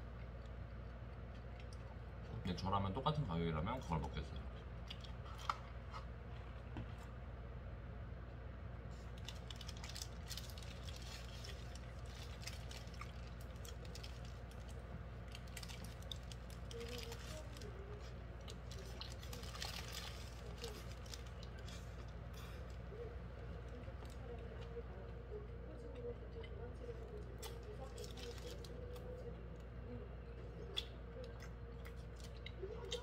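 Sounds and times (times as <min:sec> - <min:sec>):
steady low hum: 0:00.0 - 0:33.0
person chewing: 0:09.0 - 0:23.0.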